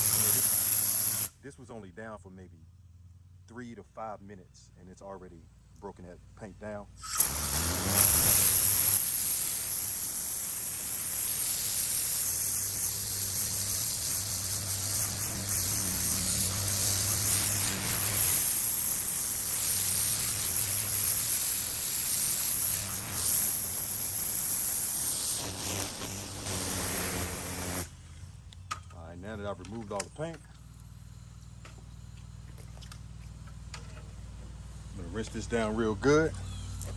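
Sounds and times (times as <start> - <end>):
pressure washer spray hissing: 0.0 - 1.4, 7.0 - 27.9.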